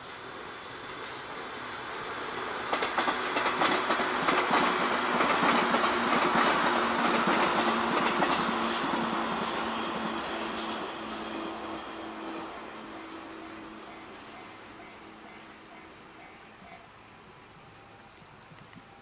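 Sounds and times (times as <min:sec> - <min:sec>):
train wheels clattering over rail joints: 0:02.5 - 0:11.7.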